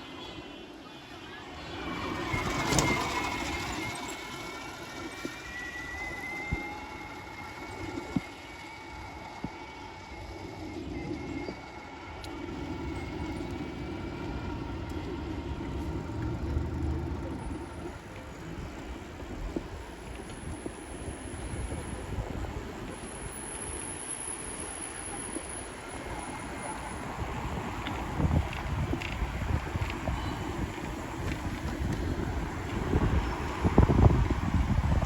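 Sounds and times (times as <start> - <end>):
thin high whine: 0.0 - 16.2
road and traffic rush: 0.0 - 35.0
heavy low rumble: 11.1 - 19.8.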